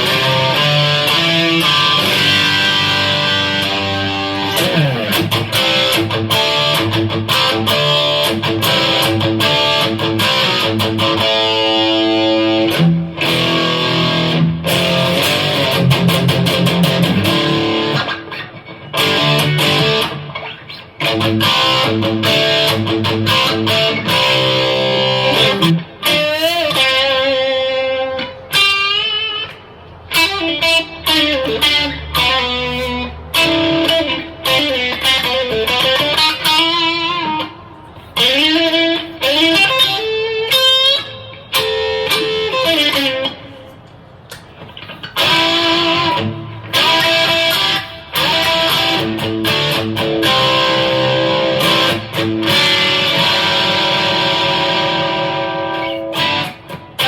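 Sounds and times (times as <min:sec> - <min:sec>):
distorted electric guitar: 0:00.0 - 0:57.0.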